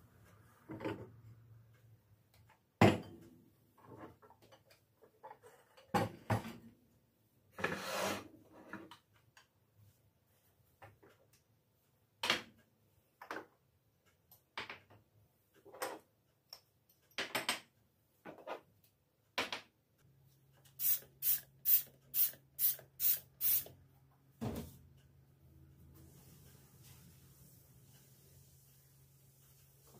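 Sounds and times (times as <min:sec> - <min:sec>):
trigger spray bottle squirting: 0:20.8 - 0:23.7.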